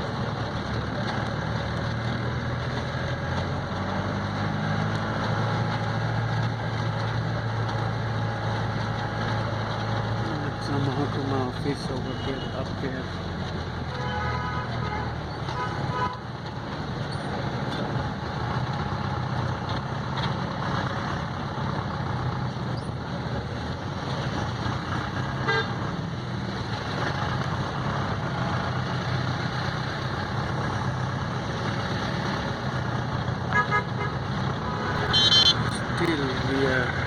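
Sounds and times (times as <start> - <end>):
road traffic engines: 0.0 - 37.0
short horn toots: 34.8 - 35.9.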